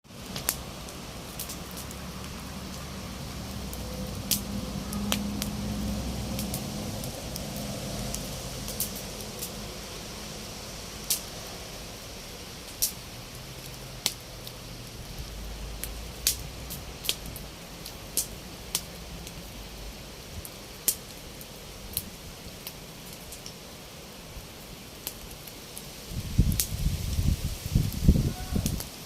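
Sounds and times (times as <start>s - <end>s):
campfire crackling: 0.0s - 29.0s
steady hiss: 0.1s - 29.0s.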